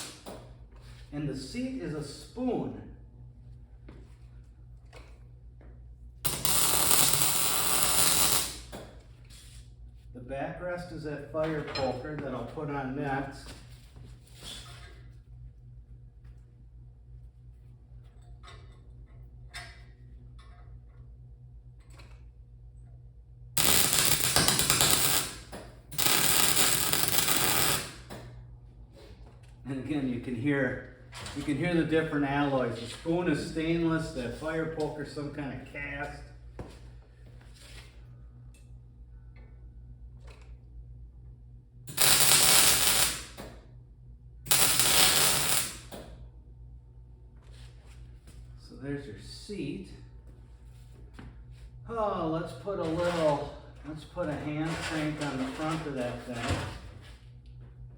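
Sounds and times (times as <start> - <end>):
welding arc crackle: 0.0 - 0.3, 6.3 - 8.8, 23.6 - 28.1, 41.9 - 43.5, 44.5 - 46.0
low steady hum: 0.0 - 57.9.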